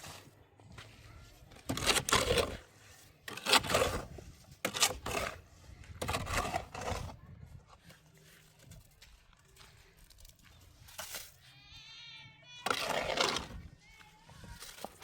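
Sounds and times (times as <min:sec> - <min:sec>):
rough scraping strokes: 0:00.0 - 0:07.2, 0:12.6 - 0:15.0.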